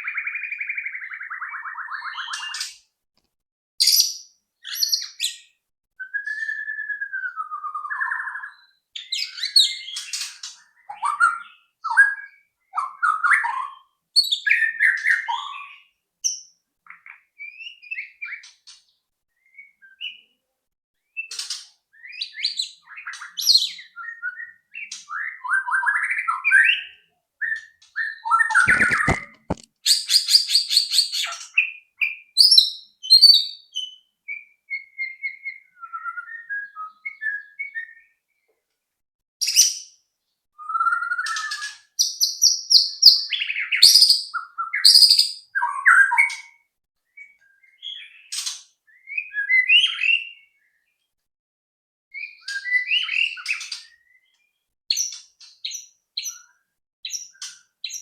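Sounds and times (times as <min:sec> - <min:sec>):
bird singing varied whistles: 0:03.8 - 0:10.0, 0:40.6 - 0:46.5.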